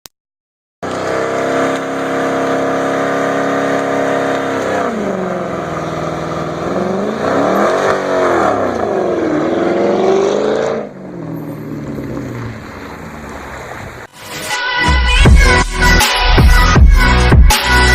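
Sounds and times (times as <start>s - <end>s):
engine revving: 0.8s - 14.1s.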